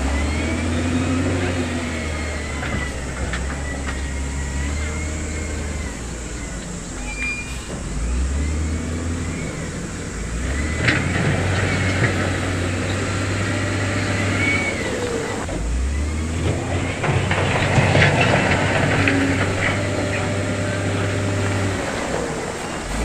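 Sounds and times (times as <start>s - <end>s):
heavy machinery engine running: 0.0s - 23.0s
thin high squeals: 0.1s - 10.8s.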